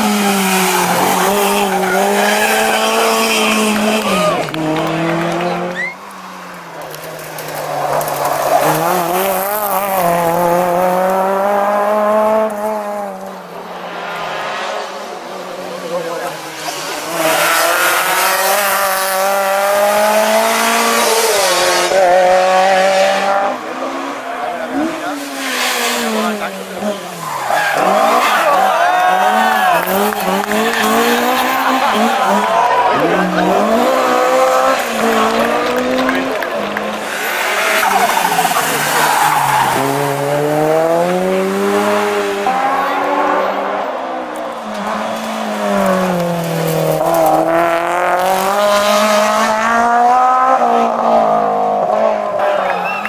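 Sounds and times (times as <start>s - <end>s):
tyres squealing and skidding: 0.0s - 10.3s, 23.6s - 41.1s, 52.4s - 53.0s
rally car engine pulling hard: 0.0s - 13.4s, 14.2s - 53.0s.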